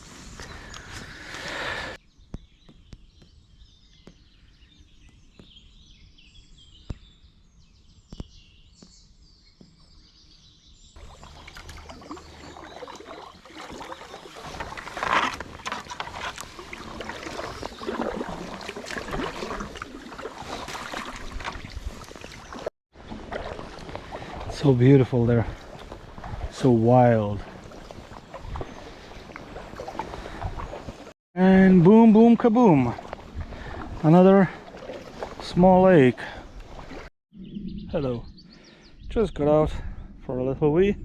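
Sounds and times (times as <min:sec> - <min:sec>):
faint bird song: 0:00.3 - 0:14.7, 0:37.3 - 0:41.0
water splashing around kayak: 0:11.0 - 0:37.1.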